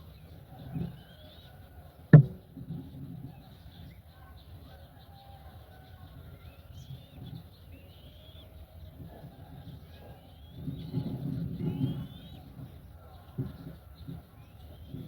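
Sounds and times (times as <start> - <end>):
sharp thump: 2.1 - 2.6
faint bird chirps: 2.4 - 15.0.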